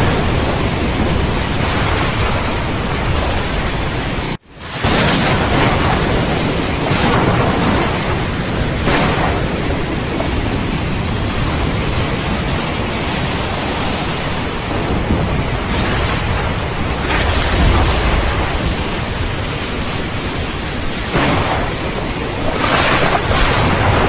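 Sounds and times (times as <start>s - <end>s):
heavy rain: 0.0s - 24.0s
rolling thunder: 0.0s - 24.0s.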